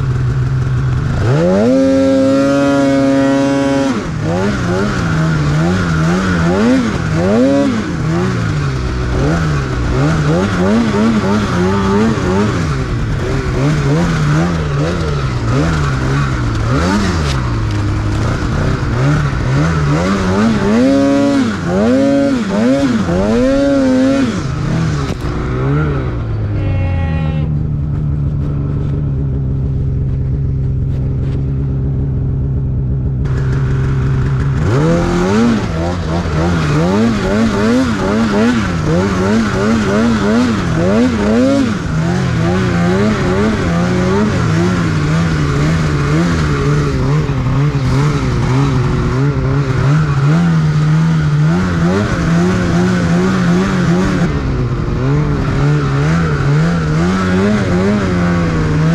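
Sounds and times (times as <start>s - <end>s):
snowmobile engine revving: 0.0s - 58.9s.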